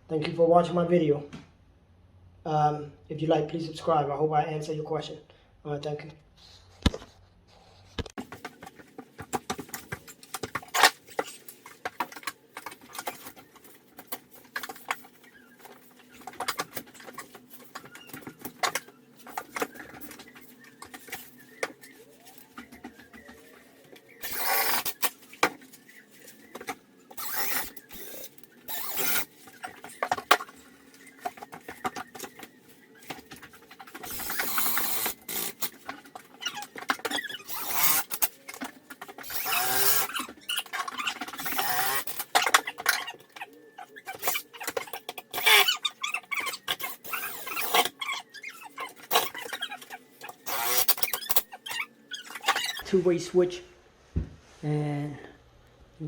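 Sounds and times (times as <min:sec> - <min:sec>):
rustling noise: 0:54.0 - 0:54.7.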